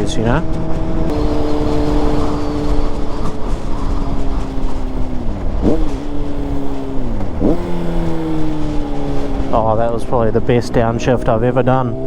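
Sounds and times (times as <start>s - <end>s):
motorcycle engine slowing: 0.0s - 12.0s
throttle blips on downshifts: 0.0s - 12.0s
wind noise: 0.0s - 12.0s.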